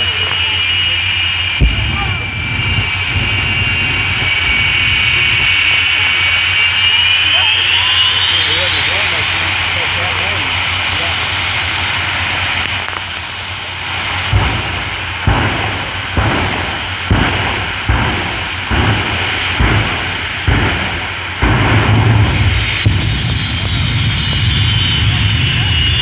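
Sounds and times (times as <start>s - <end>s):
deep engine bursts: 0.0s - 26.0s
heavy engine rumble: 0.0s - 26.0s
jet engines whining: 0.0s - 26.0s.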